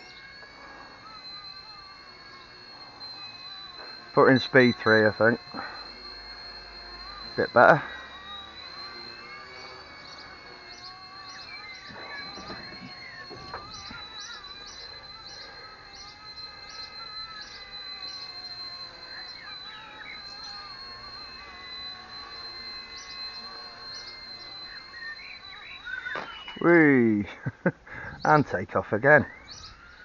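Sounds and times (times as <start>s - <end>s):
rc helicopter whine: 0.0s - 30.0s.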